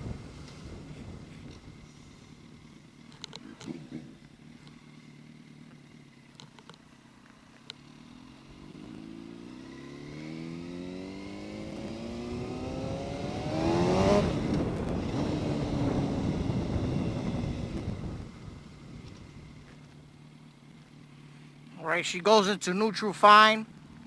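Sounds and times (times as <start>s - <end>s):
wind rush at speed: 0.0s - 2.4s, 11.6s - 19.6s
motorcycle engine accelerating: 0.0s - 21.7s.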